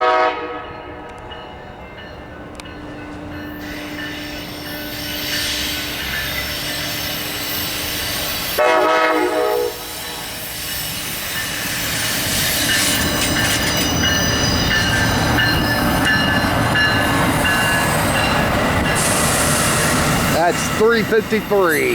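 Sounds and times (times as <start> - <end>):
train horn blast: 0.0 - 1.2, 8.6 - 10.4
train rumble: 0.0 - 21.9
high wheel squeal: 3.6 - 8.6, 9.8 - 21.9.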